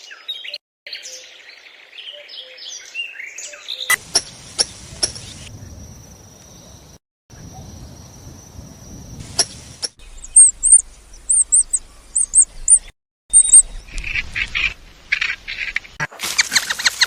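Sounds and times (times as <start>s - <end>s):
harsh bird calls: 9.2s - 17.0s
high bird chirps: 9.3s - 15.8s.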